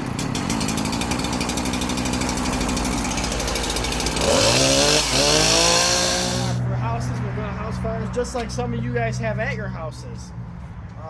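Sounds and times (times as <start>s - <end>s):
saw engine idling and revving: 0.0s - 9.6s.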